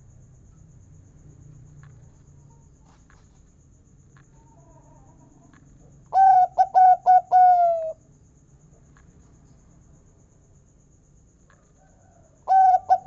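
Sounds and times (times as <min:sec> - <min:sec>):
dove singing: 0:06.1 - 0:08.0, 0:12.5 - 0:13.0.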